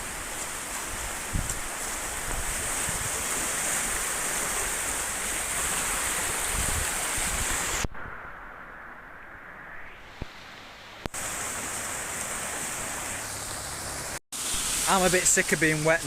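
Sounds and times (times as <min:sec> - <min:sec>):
rushing floodwater: 0:00.0 - 0:07.8, 0:11.0 - 0:16.0
wind buffeting microphone: 0:00.8 - 0:10.4.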